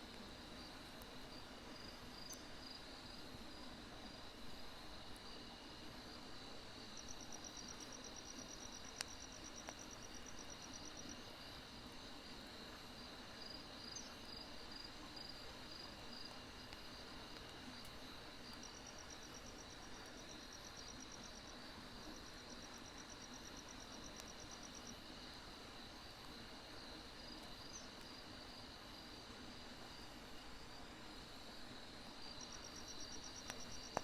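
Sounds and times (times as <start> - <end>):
soft even hiss: 0.0 - 34.0
crickets chirping: 0.1 - 34.0
firewood crackle: 6.7 - 11.6, 14.1 - 34.0.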